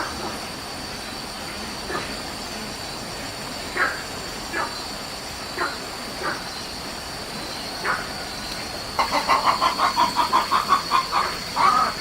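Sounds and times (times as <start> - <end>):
chicken clucking: 9.0 - 12.0
chicken drawn-out call: 9.0 - 12.0.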